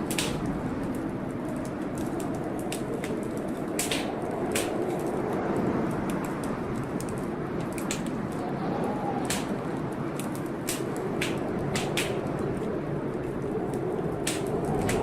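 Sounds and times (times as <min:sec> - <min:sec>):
storm noise rushing: 0:00.0 - 0:15.0
wood fire crackling: 0:00.0 - 0:15.0.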